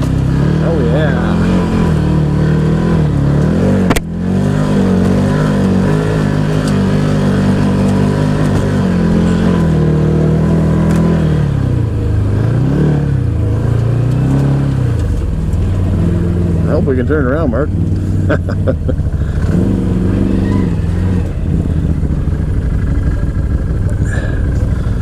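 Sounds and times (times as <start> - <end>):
sharp click: 3.9 - 4.1.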